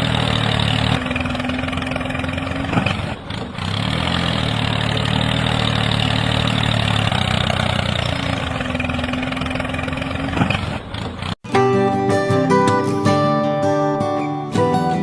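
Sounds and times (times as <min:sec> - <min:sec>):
engine idling: 0:00.0 - 0:11.4
strummed acoustic guitar music: 0:11.4 - 0:15.0.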